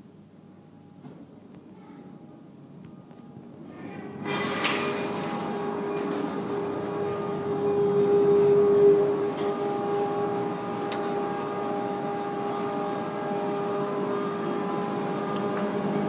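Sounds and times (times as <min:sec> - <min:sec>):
ceiling fan motor humming: 0:03.7 - 0:16.0.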